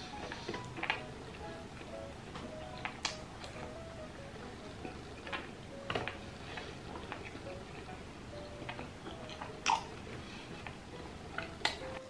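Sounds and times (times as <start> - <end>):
person chewing: 0.1 - 3.8, 4.7 - 11.9
mouth clicks and smacks: 2.8 - 3.6, 8.7 - 10.0.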